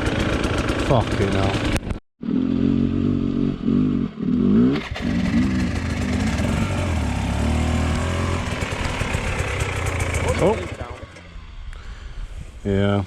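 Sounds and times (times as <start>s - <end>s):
dirt bike engine revving: 0.0s - 11.6s.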